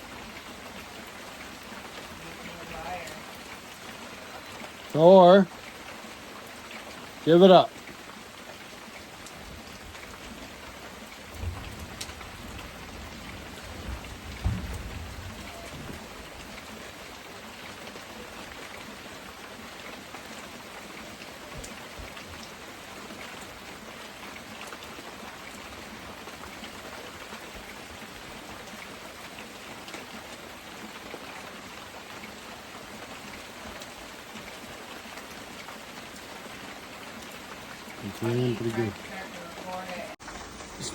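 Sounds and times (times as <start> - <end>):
heavy rain pouring: 0.0 - 40.9
thunder rumbling: 11.4 - 16.6.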